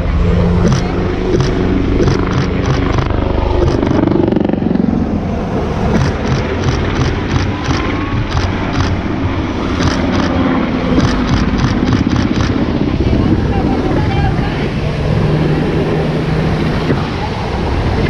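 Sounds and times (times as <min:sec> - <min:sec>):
helicopter rotor and engine: 0:00.0 - 0:18.0
short sharp clicks: 0:00.6 - 0:04.0, 0:11.0 - 0:12.6.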